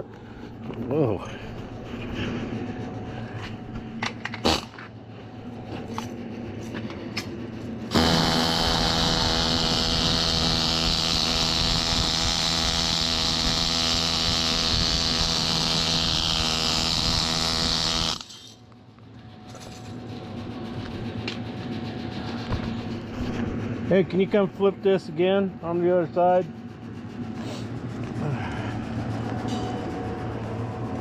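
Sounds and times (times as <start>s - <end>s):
even electrical hum: 0.0s - 31.0s
welding arc hissing and crackling: 7.9s - 18.3s.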